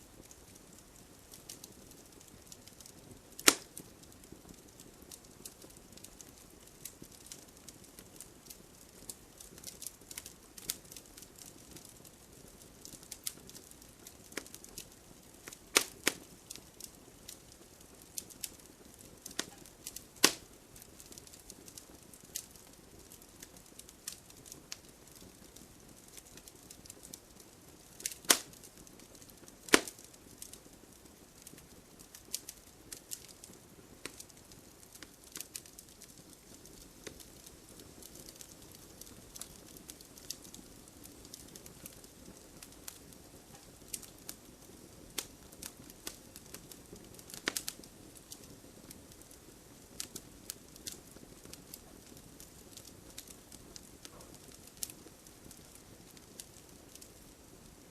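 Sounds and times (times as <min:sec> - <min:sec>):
faint hiss: 0:00.0 - 0:57.9
wood fire crackling: 0:00.0 - 0:57.9
loud sharp pops: 0:03.4 - 0:03.7, 0:20.2 - 0:20.4, 0:29.7 - 0:30.0.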